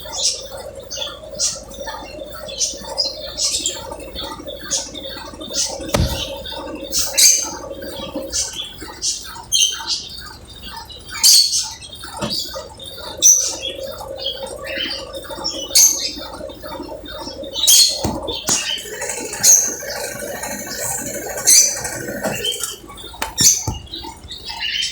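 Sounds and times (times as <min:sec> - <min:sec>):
washing machine spinning hum: 0:00.0 - 0:24.9.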